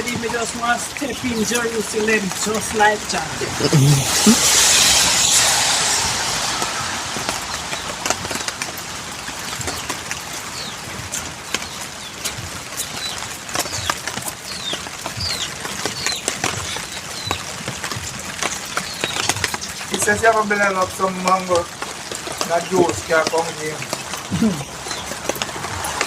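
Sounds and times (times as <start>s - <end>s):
rain hiss: 0.0s - 26.0s
rain taps: 0.0s - 26.0s
bird chirping: 11.6s - 17.5s.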